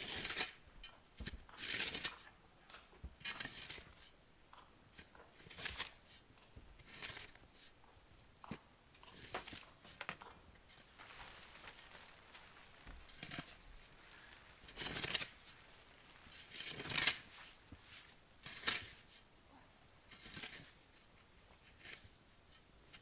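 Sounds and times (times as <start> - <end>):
rustling and scuffing: 1.2 - 23.0.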